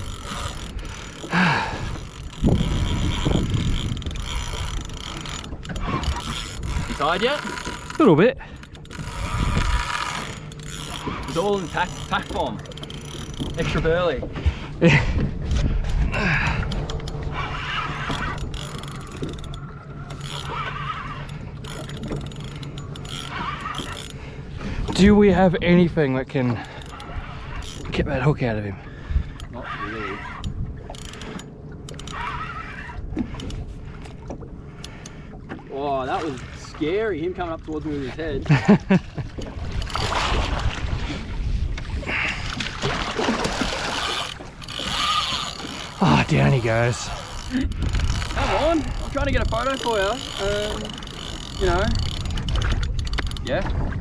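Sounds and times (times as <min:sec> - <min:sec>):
fishing reel ratcheting and whining: 0:00.0 - 0:14.0, 0:16.6 - 0:25.5, 0:26.6 - 0:28.3, 0:29.2 - 0:34.2, 0:39.6 - 0:40.2, 0:43.9 - 0:53.6
wind buffeting microphone: 0:00.0 - 0:26.1, 0:36.3 - 0:54.0
water sloshing against boat hull: 0:00.0 - 0:54.0.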